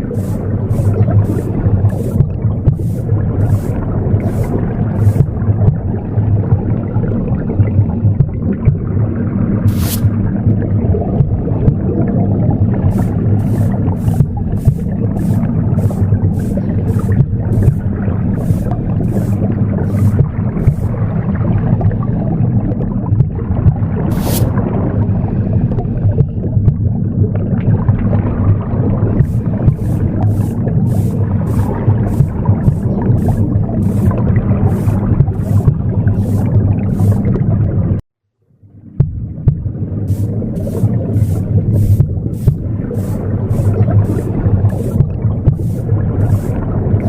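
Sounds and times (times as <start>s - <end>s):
broom sweeps: 0.0s - 5.4s, 9.7s - 10.2s, 12.9s - 21.0s, 24.1s - 24.6s, 29.2s - 37.4s, 40.1s - 47.0s
low rumbling whoosh: 7.9s - 38.0s.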